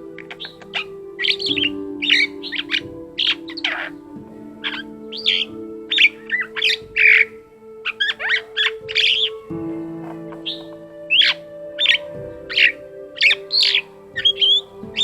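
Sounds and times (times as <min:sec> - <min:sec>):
starling singing whistles and chirps: 0:00.0 - 0:15.0.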